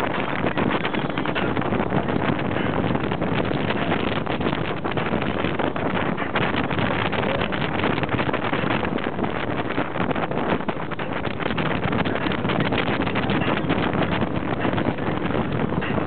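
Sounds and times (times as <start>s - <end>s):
motorboat running: 0.0s - 16.0s
wind on microphone: 0.0s - 16.0s.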